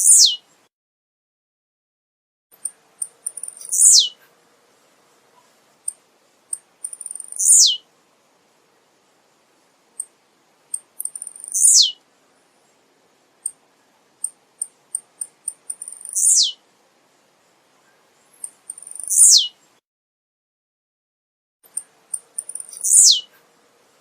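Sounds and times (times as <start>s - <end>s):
bird buzzy song: 0.0s - 0.7s, 2.6s - 7.9s, 8.7s - 19.8s, 21.7s - 24.0s
high bird chips: 21.7s - 23.2s.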